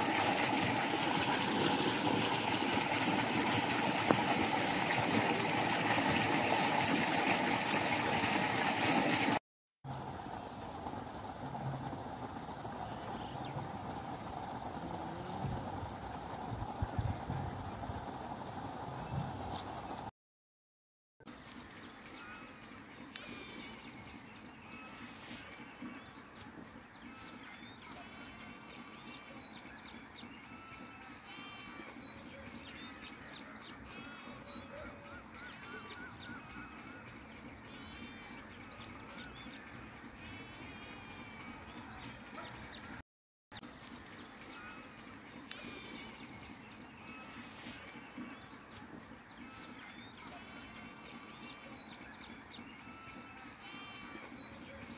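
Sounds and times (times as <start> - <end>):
low outdoor background: 0.0 - 20.1, 21.2 - 54.9
birds chirping: 10.2 - 20.0, 21.3 - 43.0, 43.6 - 54.9.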